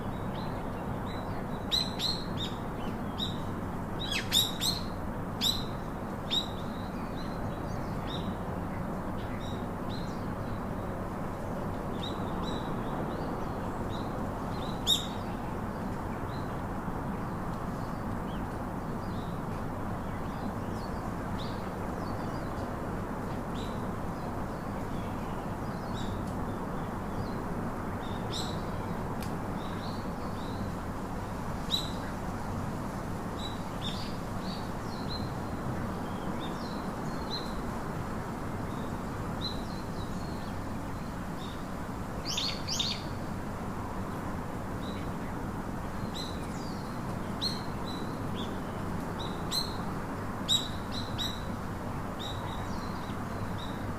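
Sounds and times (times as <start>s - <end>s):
steady background noise: 0.0s - 53.9s
small birds chirping: 38.7s - 43.2s, 44.8s - 53.9s.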